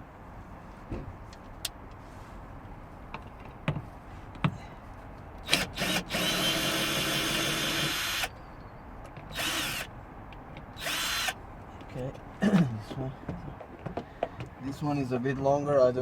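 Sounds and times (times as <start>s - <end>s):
cordless drill motor: 5.4s - 8.4s, 9.3s - 9.9s, 10.8s - 11.4s.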